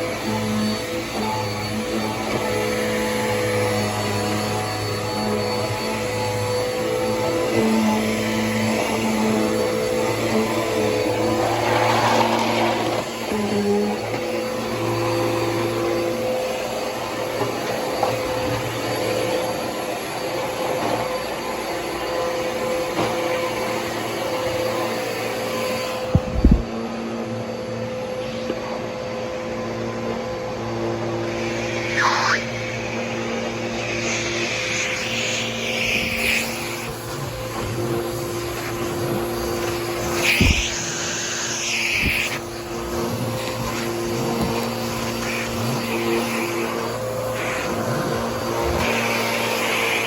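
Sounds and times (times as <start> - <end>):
vacuum cleaner motor humming: 0.0 - 50.0
short low thump: 26.1 - 26.7.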